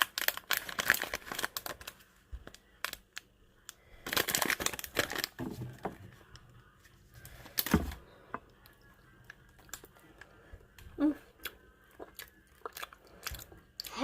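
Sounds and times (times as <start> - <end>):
plastic snack packet crinkling: 0.0 - 6.0, 9.2 - 10.3, 12.0 - 14.0.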